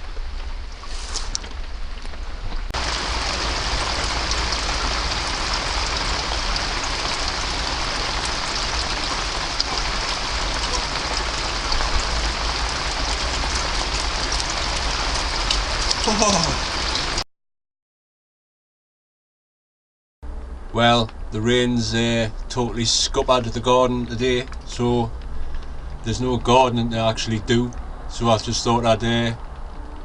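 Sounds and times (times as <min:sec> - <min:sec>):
heavy rain falling: 0:00.0 - 0:17.2.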